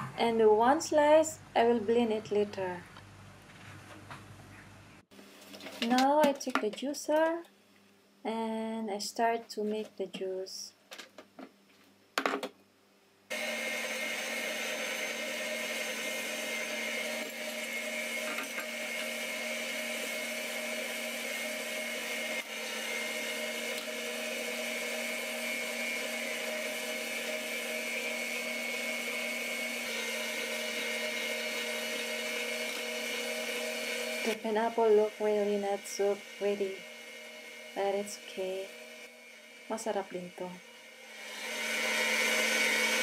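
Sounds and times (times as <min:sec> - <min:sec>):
juicer motor hum and whine: 0:13.3 - 0:43.0.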